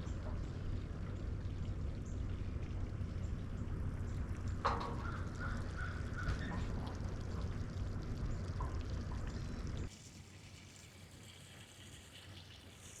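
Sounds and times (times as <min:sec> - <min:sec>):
steady low rumbling noise: 0:00.0 - 0:09.9.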